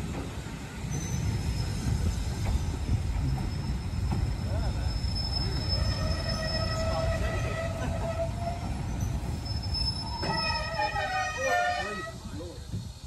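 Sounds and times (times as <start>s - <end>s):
train running gear rumble: 0.0s - 13.0s
high-pitched wheel and brake squeal: 3.2s - 12.3s.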